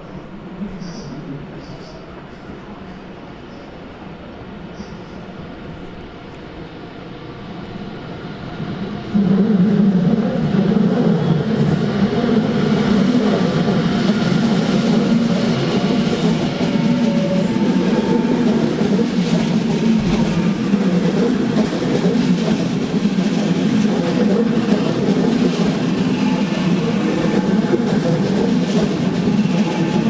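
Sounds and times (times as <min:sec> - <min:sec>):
train running at low speed: 0:00.0 - 0:30.0.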